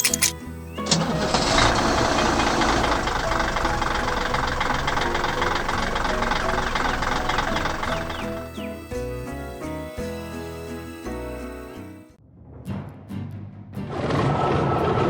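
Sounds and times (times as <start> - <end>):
truck engine running: 0.0 - 10.0
background music: 0.0 - 15.0.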